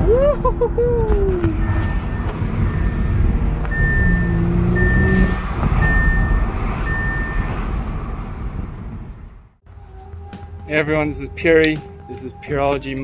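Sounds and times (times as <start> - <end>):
car engine note: 1.4 - 10.7
car chime beeping: 1.5 - 7.6.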